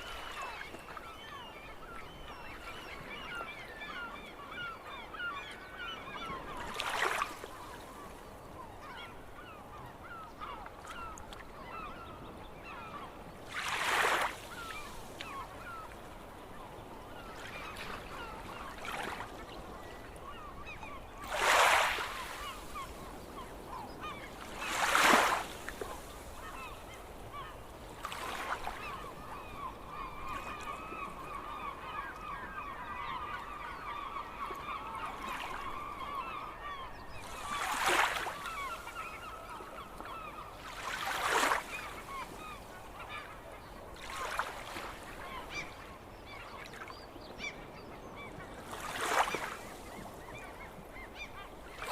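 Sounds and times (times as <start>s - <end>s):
seagulls calling: 0.0s - 51.9s.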